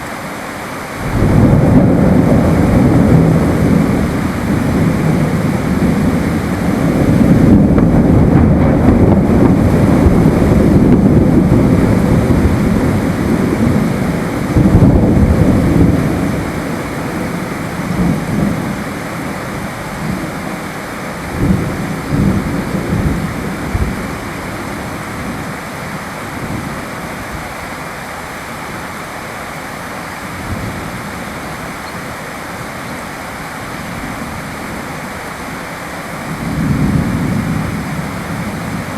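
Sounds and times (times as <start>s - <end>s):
steady rain hiss: 0.0s - 38.9s
rolling thunder: 1.0s - 27.4s, 36.2s - 38.9s.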